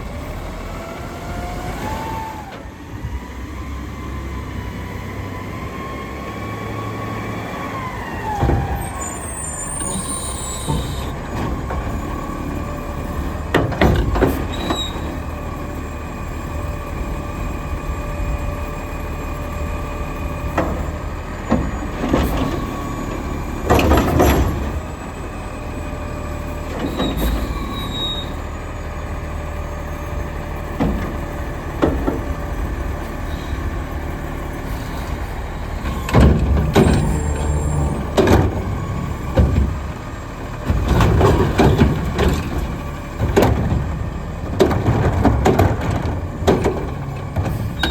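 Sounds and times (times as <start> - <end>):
garbage truck engine running: 0.0 - 47.9.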